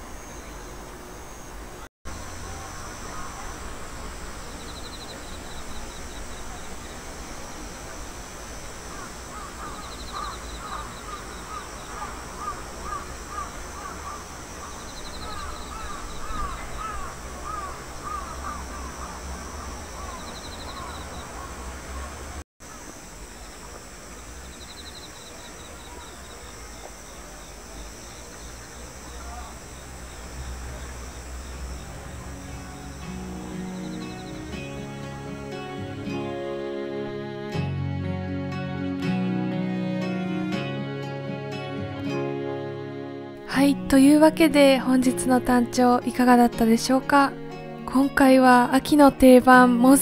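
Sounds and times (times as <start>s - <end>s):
insect's short high trill: 8.4s - 21.5s.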